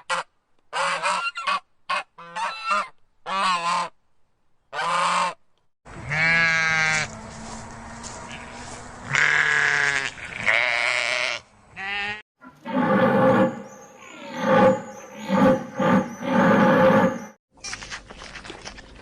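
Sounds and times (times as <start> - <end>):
animal calls: 12.4 - 17.3.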